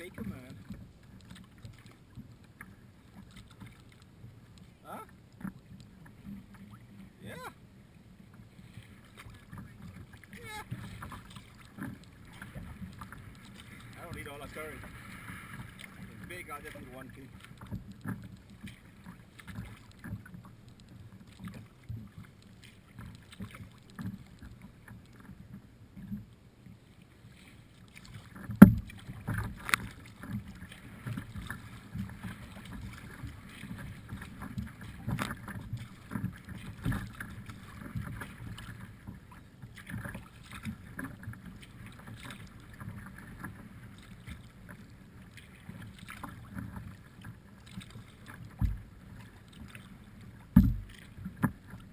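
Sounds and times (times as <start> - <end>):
kayak paddling splashes: 0.0 - 51.9
sharp knocks on kayak: 28.4 - 30.4, 48.5 - 48.9, 50.5 - 51.6.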